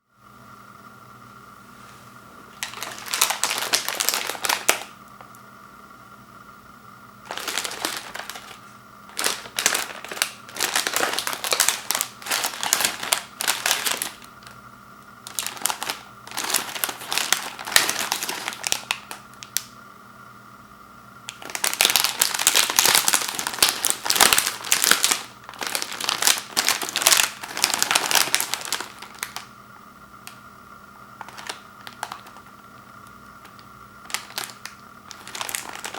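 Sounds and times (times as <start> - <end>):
faint steady hum: 0.0 - 35.9
plastic wrapper crinkling: 2.5 - 5.3, 7.2 - 14.6, 15.2 - 19.7, 21.3 - 29.5, 31.2 - 35.9.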